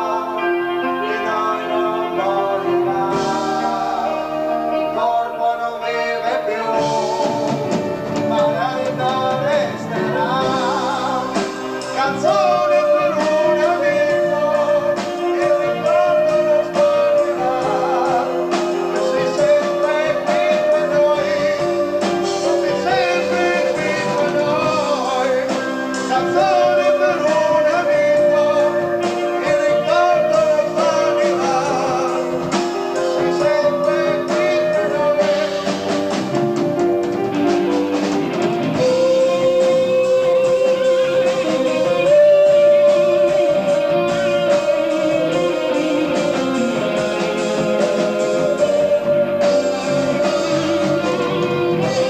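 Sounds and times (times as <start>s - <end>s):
electric guitar: 0.0s - 52.0s
person singing: 0.0s - 52.0s
rock band playing live: 0.0s - 52.0s.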